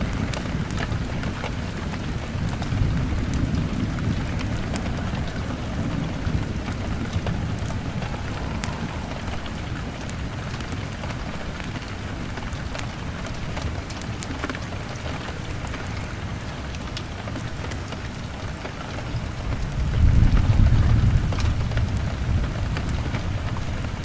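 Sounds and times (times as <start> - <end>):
fire crackling: 0.0 - 24.0
rain on a window: 0.0 - 24.0
low rumble: 1.1 - 11.8.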